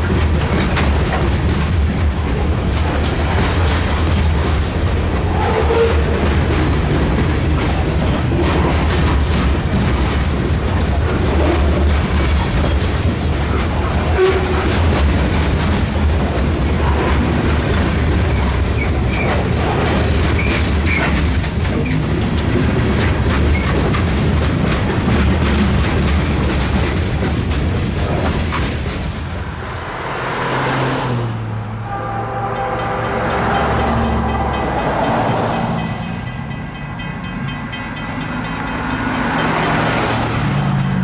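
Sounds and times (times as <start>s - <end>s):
train rumbling and clattering: 0.0s - 41.0s
train wheel squeals: 5.2s - 6.5s, 18.2s - 22.1s, 22.9s - 24.0s, 31.7s - 36.5s.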